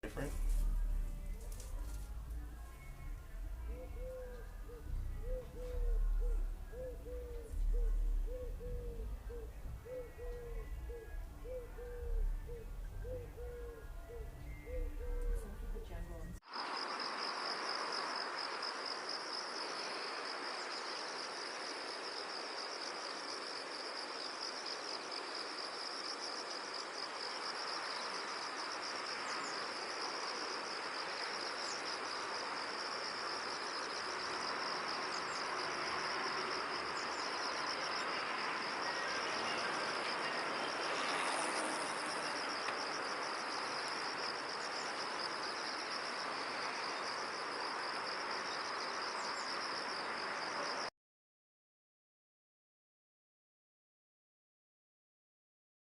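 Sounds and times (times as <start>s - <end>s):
background hiss: 0.0s - 50.9s
cricket trill: 0.0s - 50.9s.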